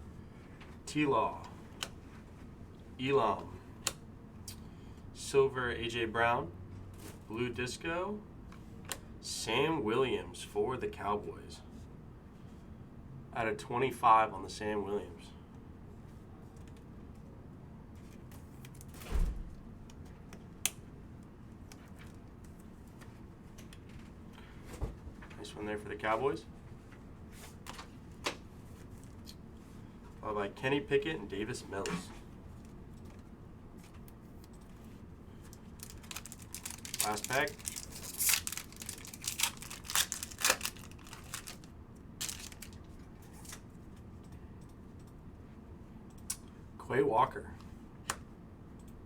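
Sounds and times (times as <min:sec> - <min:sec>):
plastic wrapper tearing and crinkling: 0:35.6 - 0:42.8.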